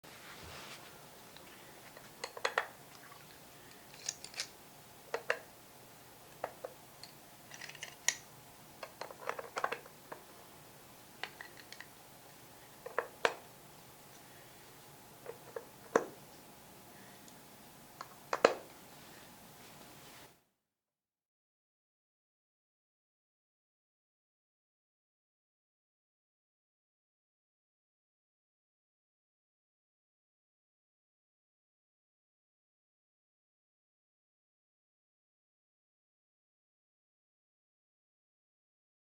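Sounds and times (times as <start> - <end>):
faint steady hum: 0.0 - 20.4
hard objects clicking and knocking: 8.8 - 10.2, 12.8 - 13.4.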